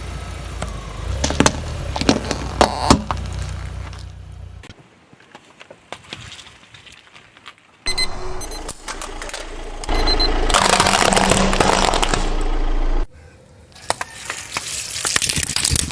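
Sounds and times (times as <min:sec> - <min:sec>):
low engine hum: 0:00.0 - 0:04.7, 0:07.9 - 0:13.1
tyre crushing brittle objects: 0:00.6 - 0:04.2, 0:10.5 - 0:12.4, 0:13.8 - 0:15.9.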